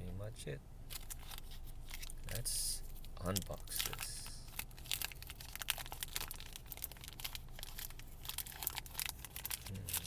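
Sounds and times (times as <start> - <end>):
packaging crinkling and tearing: 0.9 - 2.4, 3.0 - 10.0.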